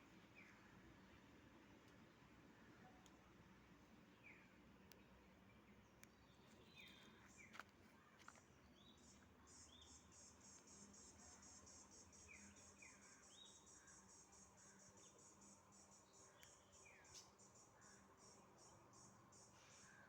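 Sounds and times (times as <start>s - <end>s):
faint clicks: 3.0s - 3.2s.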